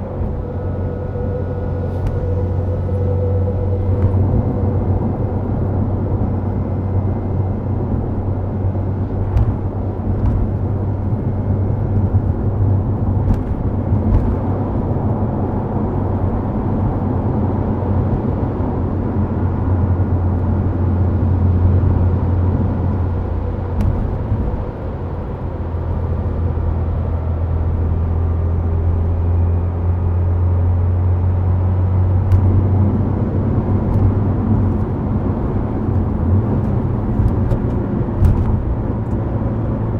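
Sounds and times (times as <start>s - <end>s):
tyre and road noise: 0.0s - 29.1s, 31.6s - 39.9s
car engine droning: 0.0s - 39.9s
sharp knocks from road surface: 37.1s - 38.8s.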